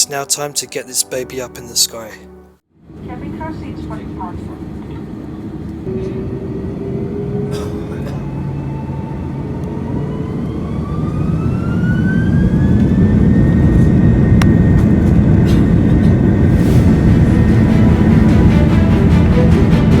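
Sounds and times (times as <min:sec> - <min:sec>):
jet engines spooling up: 0:05.9 - 0:07.6, 0:08.2 - 0:20.0.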